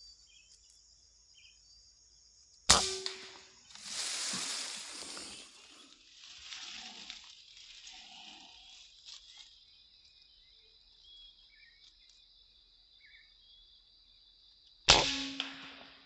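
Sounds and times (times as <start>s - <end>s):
insects chirring: 0.0s - 15.8s
air rifle shot: 2.7s - 3.4s, 14.9s - 16.0s.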